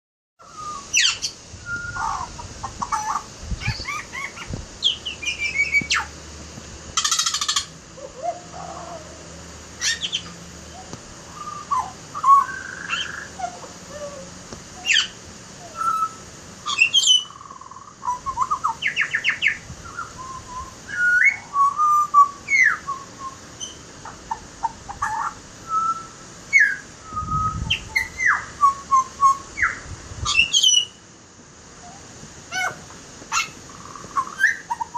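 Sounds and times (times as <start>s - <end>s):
bird singing whistled notes: 0.4s - 2.3s, 3.0s - 6.1s, 9.8s - 13.7s, 14.8s - 23.8s, 25.0s - 31.0s, 31.8s - 34.9s.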